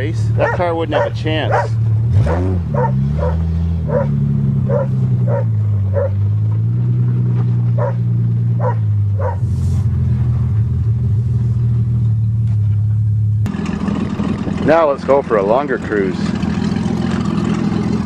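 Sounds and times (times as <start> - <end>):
car engine running inside cabin: 0.0 - 14.8
dog barking: 0.4 - 6.2, 7.8 - 8.0, 8.6 - 9.5.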